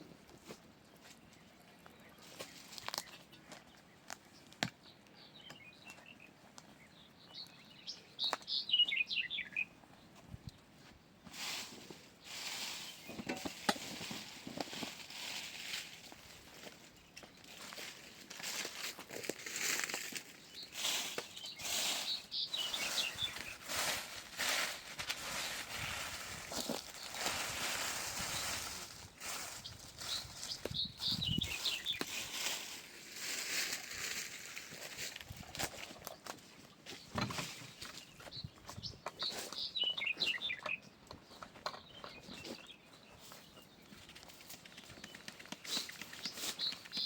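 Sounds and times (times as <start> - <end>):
faint bird chirps: 5.0 - 10.6, 29.3 - 32.5, 36.9 - 47.0.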